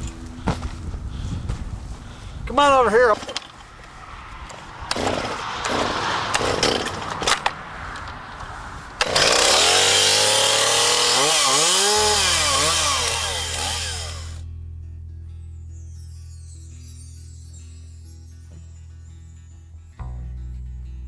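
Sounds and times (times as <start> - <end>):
music: 0.0 - 2.0, 14.4 - 21.0
chainsaw revving: 9.0 - 14.4.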